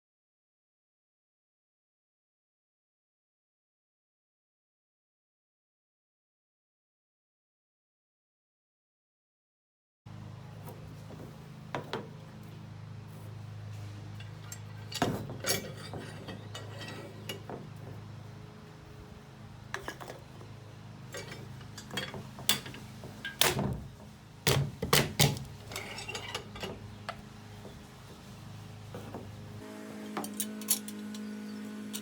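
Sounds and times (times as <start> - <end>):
metal clinks and knocks: 13.8 - 19.0, 19.7 - 29.6.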